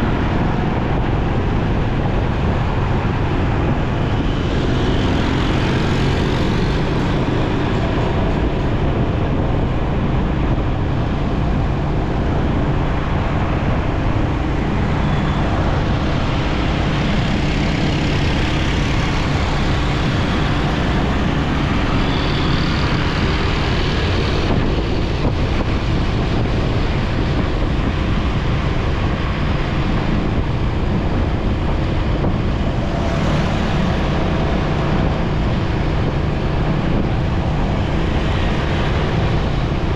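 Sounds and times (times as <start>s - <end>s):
road traffic: 0.0s - 39.9s
wind noise on microphone: 0.0s - 39.9s.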